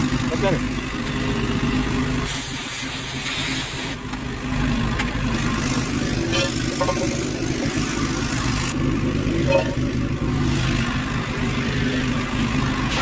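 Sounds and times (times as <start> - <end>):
pressure washer spray hiss: 2.3 - 4.0.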